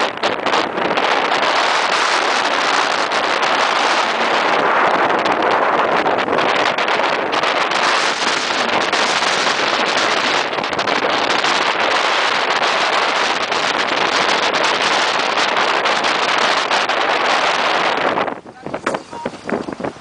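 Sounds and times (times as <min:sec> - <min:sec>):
water rushing past yacht: 0:00.0 - 0:20.0
wind rushing: 0:00.0 - 0:20.0.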